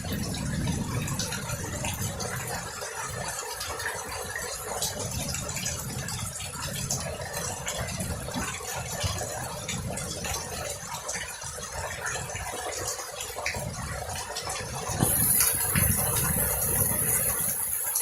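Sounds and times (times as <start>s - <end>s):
steady rain: 0.0s - 18.0s
raindrops ticking: 3.2s - 18.0s.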